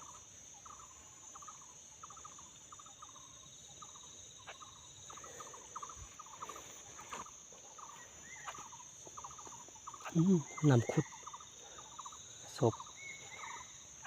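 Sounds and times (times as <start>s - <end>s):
birds rattling chatter calls: 0.0s - 14.0s
high insect drone: 0.0s - 14.0s.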